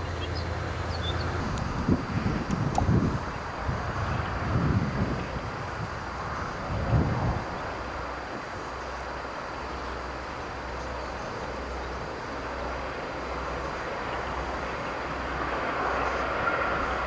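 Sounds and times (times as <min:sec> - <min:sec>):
train rumbling and rushing: 0:00.0 - 0:17.0.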